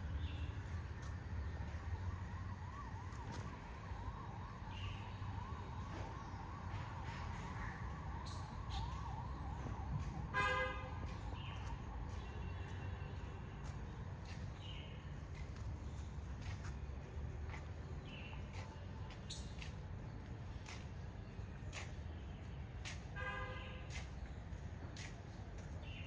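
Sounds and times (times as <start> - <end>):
faint wailing siren: 0.1 - 25.7.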